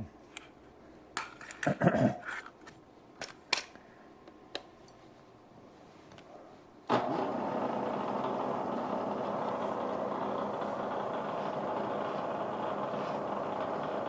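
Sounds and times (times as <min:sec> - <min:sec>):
machine tool motor running: 0:06.9 - 0:14.0.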